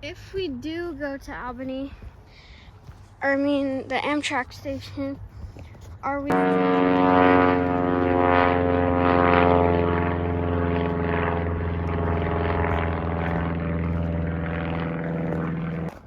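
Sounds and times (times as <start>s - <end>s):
steady engine drone: 6.2s - 16.0s.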